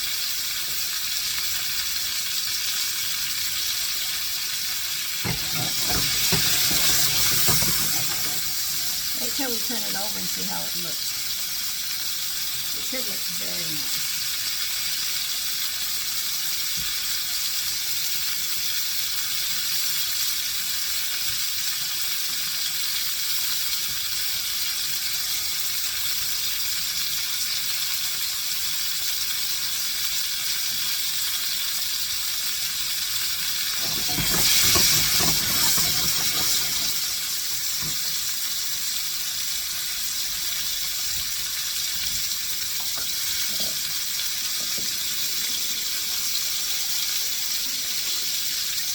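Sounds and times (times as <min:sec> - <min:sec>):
meat sizzling in oil: 0:00.0 - 0:48.9.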